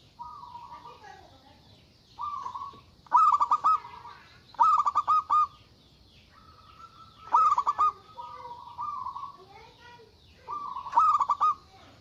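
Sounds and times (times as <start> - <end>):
dove stuttering calls: 0.0 - 12.0
dove soft drawn-out coos: 2.2 - 5.6, 6.3 - 9.4, 10.4 - 12.0.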